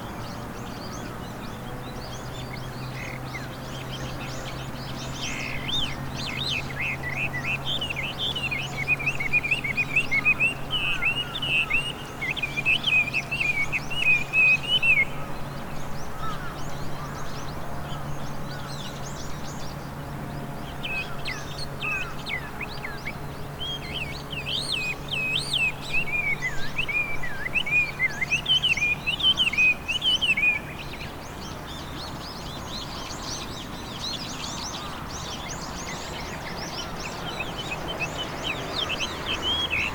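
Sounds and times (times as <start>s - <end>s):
thrush singing whistled song: 23.7s - 31.2s, 35.8s - 39.9s.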